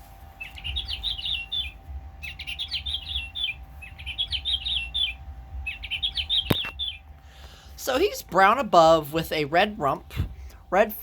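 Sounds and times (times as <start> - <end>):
recorded finch song from toy: 0.4 - 7.0.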